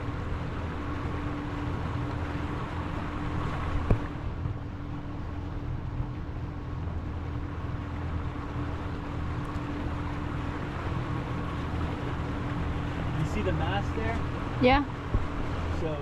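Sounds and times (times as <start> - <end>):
boat engine humming: 0.0 - 16.0
wind and water hiss: 0.0 - 16.0.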